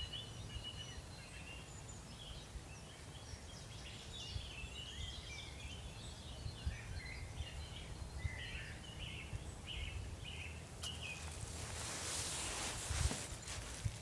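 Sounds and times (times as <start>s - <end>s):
songbird chirping: 7.0s - 14.0s.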